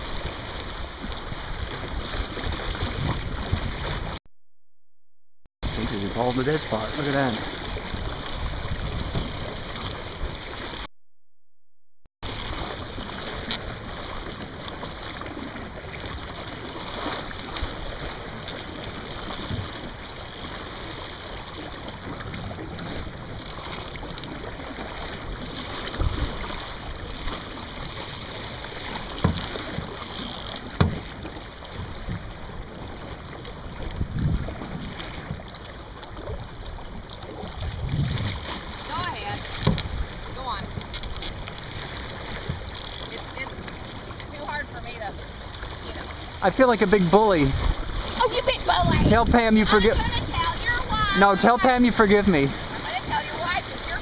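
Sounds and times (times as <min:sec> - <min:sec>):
water rushing along boat hull: 0:00.0 - 0:04.2, 0:05.6 - 0:10.9, 0:12.2 - 0:54.0
wind on microphone: 0:01.2 - 0:04.2, 0:07.4 - 0:10.3, 0:33.8 - 0:35.4, 0:37.4 - 0:40.9, 0:47.5 - 0:51.2.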